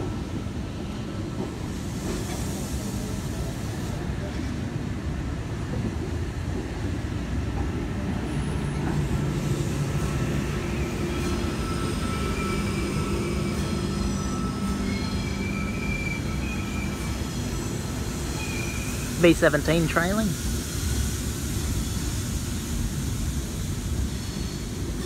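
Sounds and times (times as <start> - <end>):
train wheels rumbling on rails: 0.0 - 25.0
high wheel squeals: 10.7 - 19.2.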